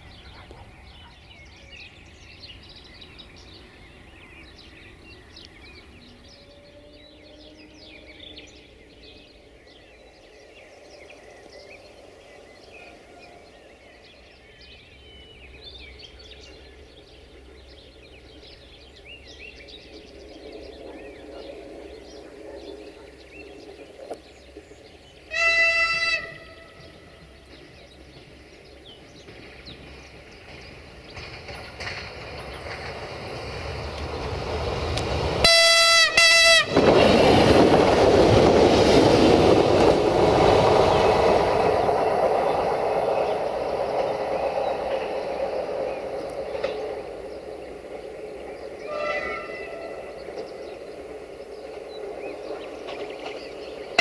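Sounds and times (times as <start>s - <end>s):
birds chirping: 0.0s - 54.0s
train diesel engine and wheels: 0.0s - 54.0s
train horn blasts: 25.3s - 27.0s, 35.4s - 37.2s, 48.8s - 50.2s.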